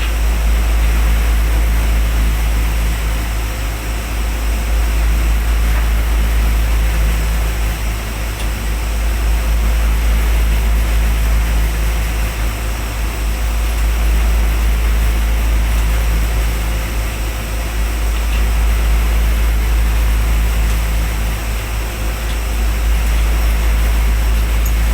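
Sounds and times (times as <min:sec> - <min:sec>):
machinery droning: 0:19.2 - 0:24.9.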